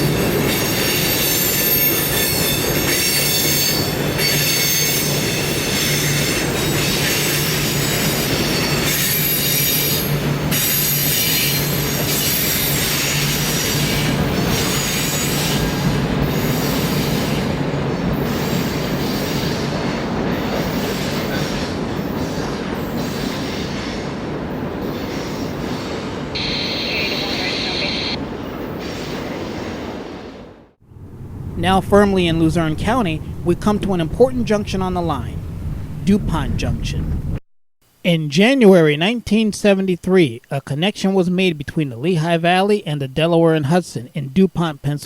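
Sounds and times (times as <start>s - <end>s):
train wheels squealing on rails: 0.0s - 30.2s
train rumble: 0.0s - 37.4s
steady low hum: 30.9s - 37.4s.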